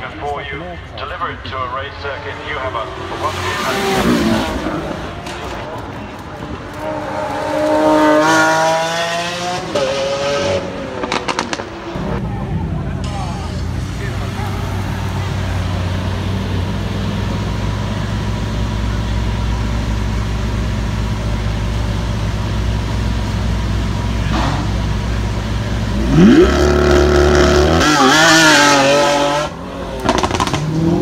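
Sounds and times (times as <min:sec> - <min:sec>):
sports car engine revving: 0:06.6 - 0:12.2, 0:13.1 - 0:31.0.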